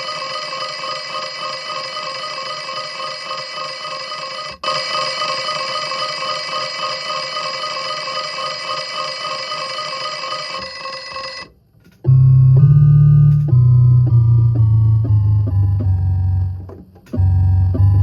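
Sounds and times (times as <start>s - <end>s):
electronic ringing tone: 0.0s - 11.5s
low electronic note: 12.0s - 18.0s.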